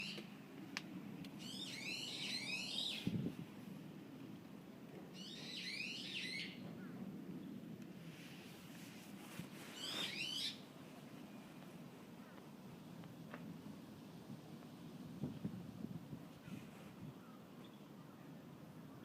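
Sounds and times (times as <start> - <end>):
low steady background noise: 0.0 - 19.0
songbird chirping: 1.3 - 3.2, 5.1 - 7.6.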